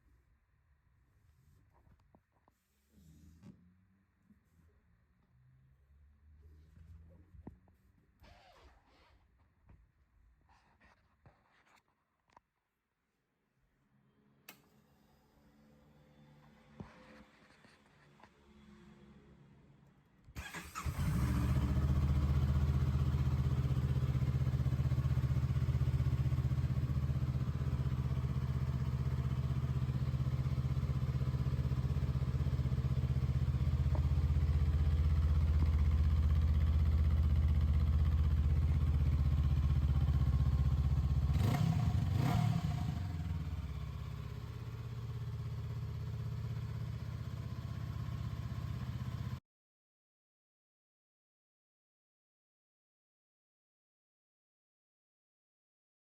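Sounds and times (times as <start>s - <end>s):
motorcycle engine idling: 20.4s - 49.4s
motorcycle engine starting: 20.4s - 49.4s.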